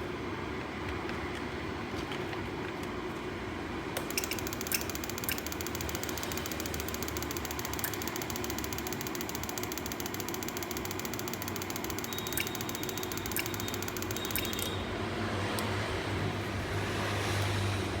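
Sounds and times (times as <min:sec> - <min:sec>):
fast fine ticking: 0:04.1 - 0:14.8.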